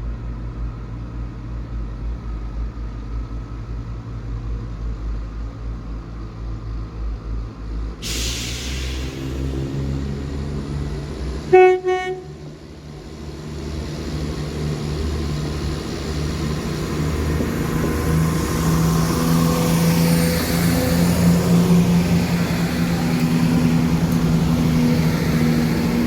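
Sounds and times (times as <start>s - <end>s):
train rumbling: 0.0s - 26.0s
train horn toot: 11.4s - 12.5s.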